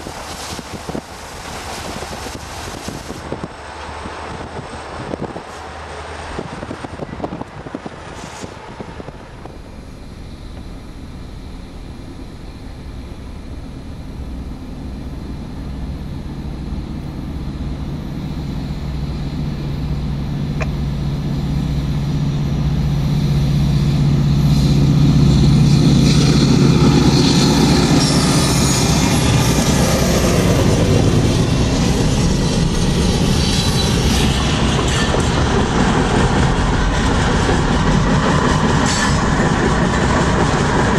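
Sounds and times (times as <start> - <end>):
diesel locomotive engine hum: 0.0 - 40.9
train cars rumbling: 0.0 - 40.9.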